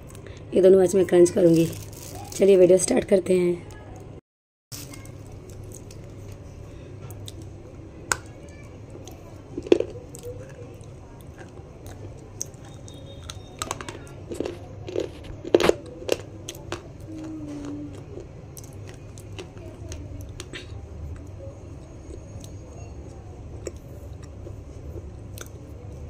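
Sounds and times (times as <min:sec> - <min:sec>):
crunchy snack being chewed: 0:08.9 - 0:22.6.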